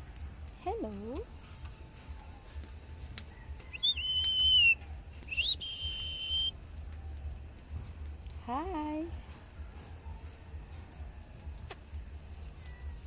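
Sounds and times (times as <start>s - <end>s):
parrot whistling: 3.7s - 6.5s.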